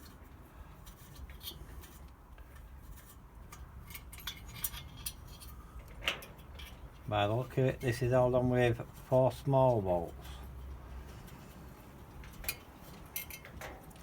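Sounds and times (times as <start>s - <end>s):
metal parts clicking and clinking: 3.0s - 7.1s, 12.2s - 14.0s.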